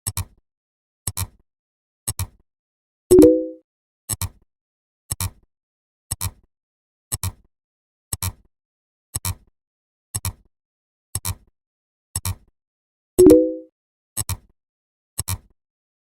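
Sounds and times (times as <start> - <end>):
low pitched beep: 3.1 - 3.6, 13.2 - 13.7.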